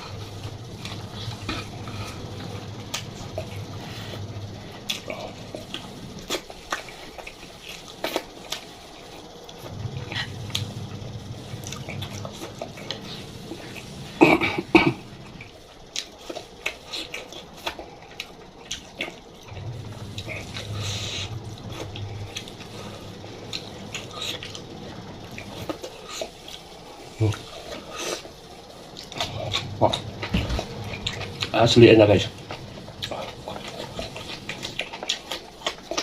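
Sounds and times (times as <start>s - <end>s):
wet chewing: 0.0s - 10.7s, 14.9s - 31.6s, 32.3s - 36.0s.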